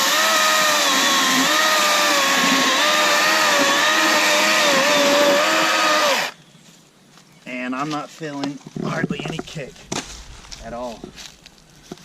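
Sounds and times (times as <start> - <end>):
electric chainsaw cutting log: 0.0 - 6.4.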